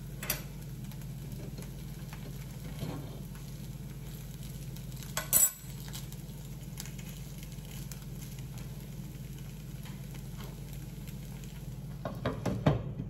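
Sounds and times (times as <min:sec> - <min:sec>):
food frying in oil: 0:00.0 - 0:13.0
steady low hum: 0:00.0 - 0:13.0
soft crackle of small ticks: 0:05.8 - 0:11.7.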